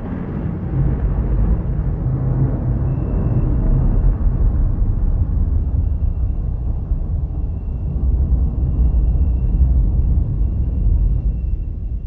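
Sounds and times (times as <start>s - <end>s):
thunder rumbling: 0.0s - 12.0s
faint steady high tone: 2.8s - 4.5s, 5.4s - 12.0s.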